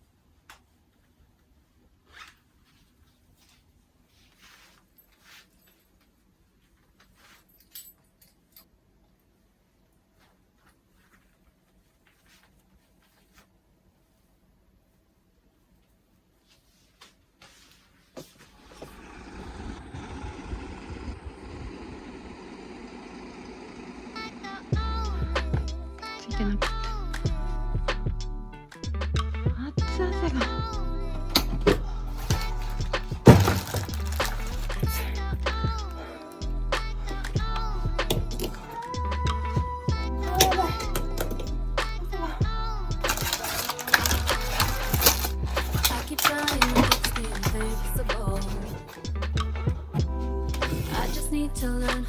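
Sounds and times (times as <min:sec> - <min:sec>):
music: 0:24.7 - 0:52.0.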